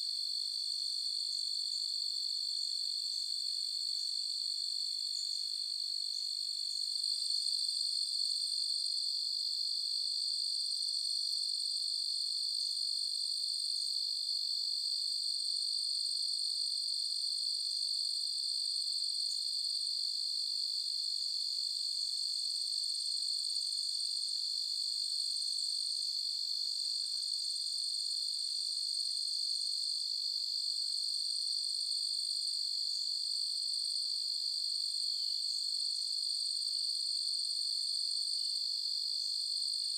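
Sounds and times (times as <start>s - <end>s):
crickets chirping: 4.8s - 7.1s, 21.3s - 29.1s.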